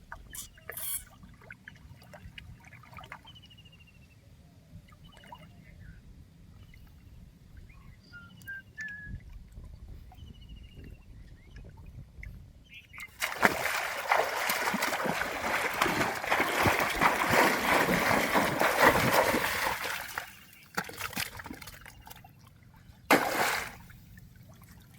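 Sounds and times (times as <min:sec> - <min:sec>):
water splashing and sloshing: 0:00.0 - 0:03.4, 0:13.0 - 0:24.9.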